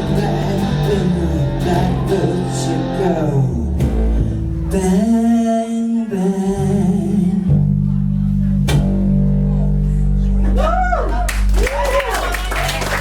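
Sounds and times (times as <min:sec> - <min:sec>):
person singing: 0:00.0 - 0:04.0.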